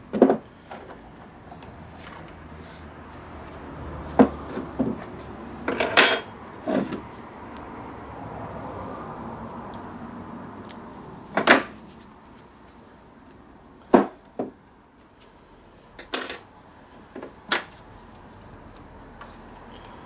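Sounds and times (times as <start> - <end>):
metal tools knocking and clunking: 5.6 - 7.0.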